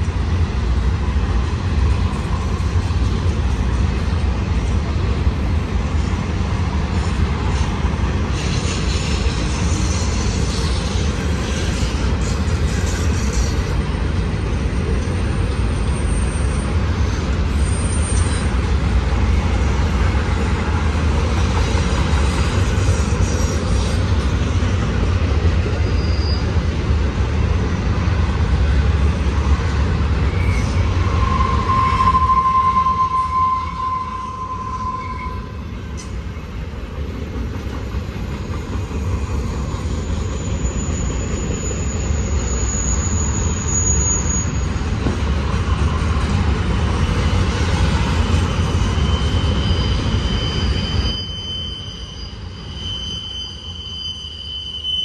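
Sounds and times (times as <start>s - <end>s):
rumble of train wheels on rail: 0.0s - 54.6s
wheel squeal: 17.6s - 18.7s, 25.7s - 26.8s, 30.2s - 35.5s, 38.4s - 45.2s, 47.0s - 55.0s.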